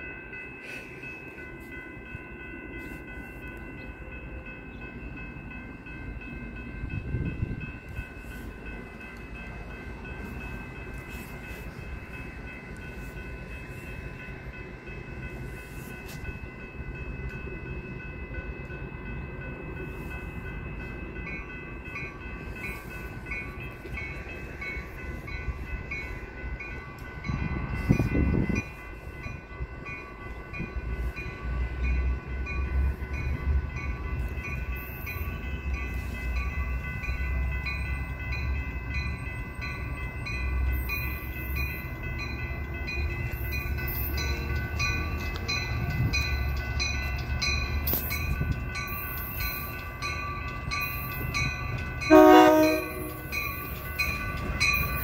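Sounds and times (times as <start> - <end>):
distant train rumble: 0.0 - 55.0
high ringing tones: 52.1 - 54.0.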